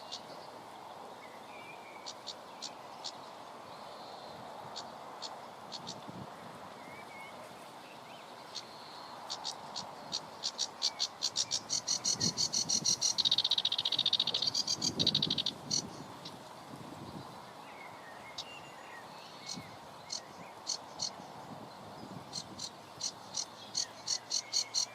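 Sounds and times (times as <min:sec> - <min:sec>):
wind noise: 0:04.3 - 0:07.0, 0:11.3 - 0:17.5, 0:19.4 - 0:23.8.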